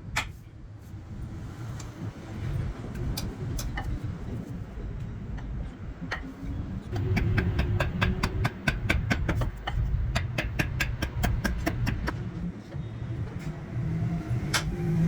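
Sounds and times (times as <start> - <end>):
steady low rumble: 0.0 - 15.0
rapid tapping strikes: 6.9 - 12.2.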